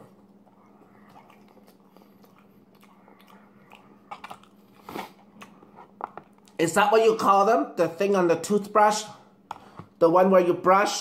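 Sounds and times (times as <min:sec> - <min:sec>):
person chewing food: 0:00.0 - 0:06.6.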